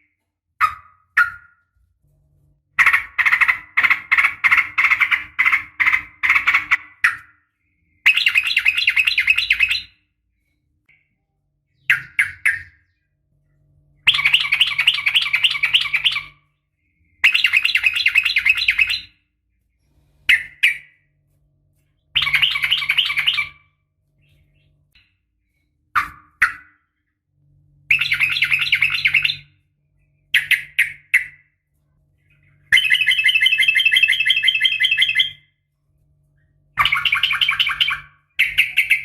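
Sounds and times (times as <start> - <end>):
bird chattering calls: 2.8 - 7.2, 36.8 - 39.0.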